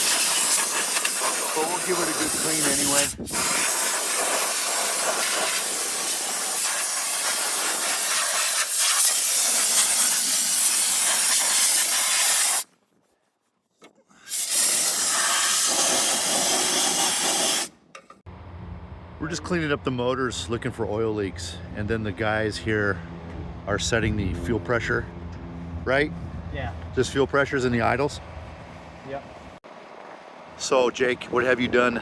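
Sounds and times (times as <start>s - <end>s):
hissing spray wand jet: 0.0s - 12.7s, 14.2s - 17.7s.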